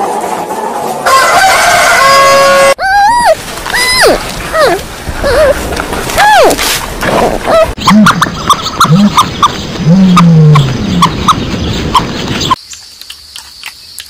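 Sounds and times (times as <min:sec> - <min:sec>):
chicks peeping: 0:07.6 - 0:13.8.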